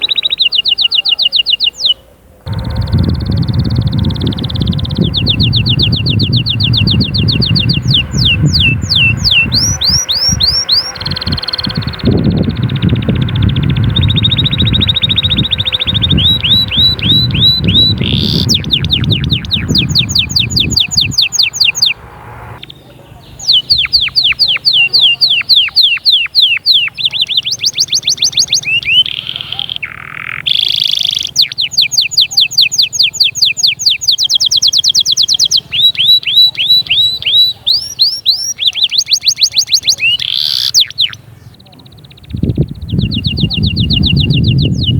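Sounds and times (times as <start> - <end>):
canary singing trills: 0.0 - 44.9
low rumbling noise: 2.5 - 24.3.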